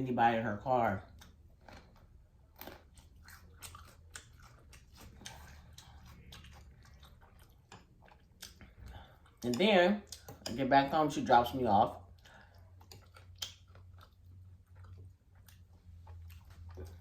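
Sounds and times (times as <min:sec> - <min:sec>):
wet chewing mouth clicks: 0:02.6 - 0:10.5, 0:12.2 - 0:17.0.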